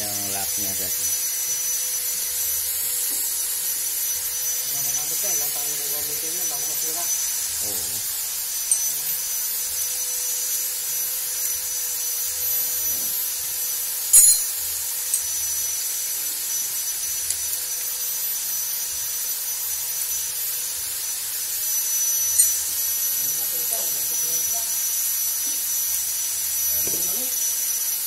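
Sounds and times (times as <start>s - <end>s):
high-pitched background hiss: 0.0s - 28.0s.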